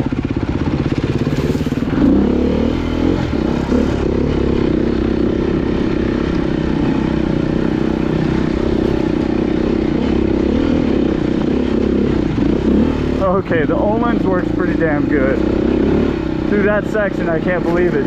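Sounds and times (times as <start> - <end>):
dirt bike engine under load: 16.4 - 18.0.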